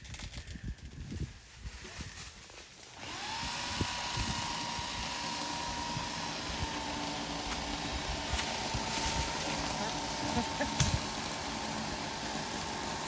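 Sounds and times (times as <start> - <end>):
power saw cutting a tree: 2.7 - 13.0.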